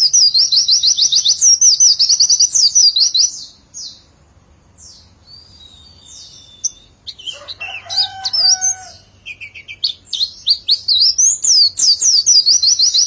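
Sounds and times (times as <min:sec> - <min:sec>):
bird chirping and twittering: 0:00.0 - 0:13.0
lower drawn-out bird call: 0:05.4 - 0:11.2.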